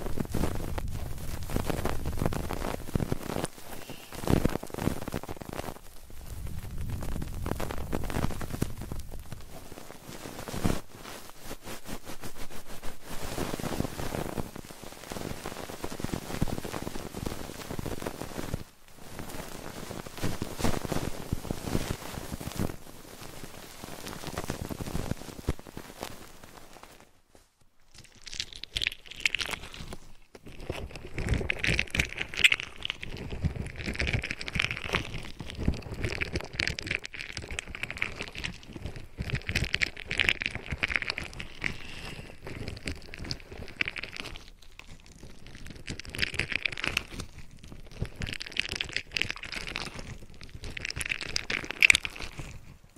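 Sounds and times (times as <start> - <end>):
crackling and rustling: 0.0 - 52.9.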